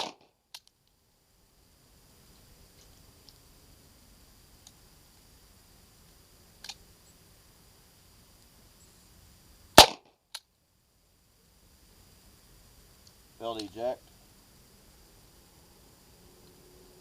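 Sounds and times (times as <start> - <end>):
pistol shot: 0.0 - 0.2, 9.8 - 10.1.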